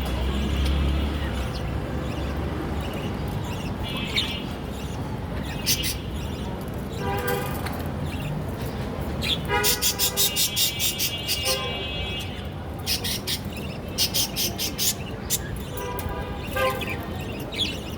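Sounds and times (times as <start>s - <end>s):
low rumble of traffic: 0.0s - 17.9s
parrots chirping: 9.2s - 11.6s, 12.8s - 15.6s.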